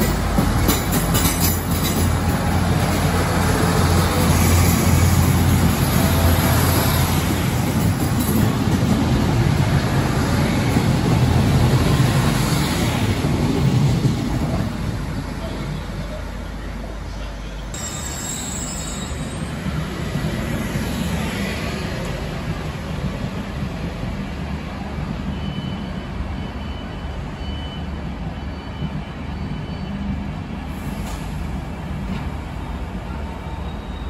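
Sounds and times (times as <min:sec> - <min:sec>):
train wheels rumbling on rail: 0:00.0 - 0:34.0
high wheel squeals: 0:17.8 - 0:19.7.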